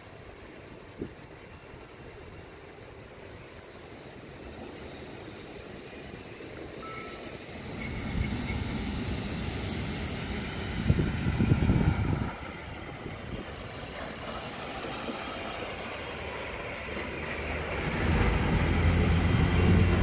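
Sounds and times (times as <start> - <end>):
metallic wheel squeal on rails: 2.3 - 12.6
train wheels rumbling: 4.3 - 20.0.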